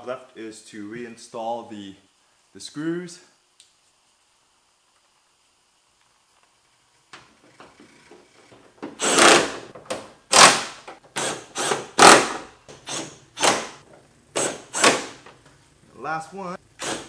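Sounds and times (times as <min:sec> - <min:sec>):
power drill driving screws: 0:09.0 - 0:09.7, 0:10.3 - 0:13.8, 0:14.4 - 0:15.2, 0:16.8 - 0:17.0.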